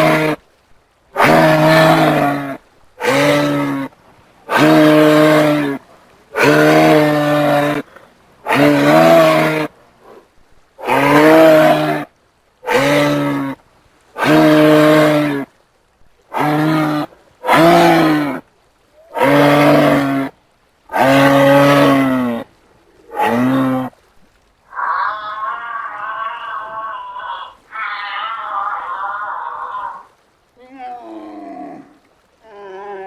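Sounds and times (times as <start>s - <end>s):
animal bellowing: 0.0s - 0.4s, 1.2s - 5.8s, 6.4s - 10.2s, 10.8s - 13.6s, 14.2s - 15.4s, 16.3s - 18.4s, 19.0s - 20.3s, 20.9s - 23.9s, 24.7s - 30.1s.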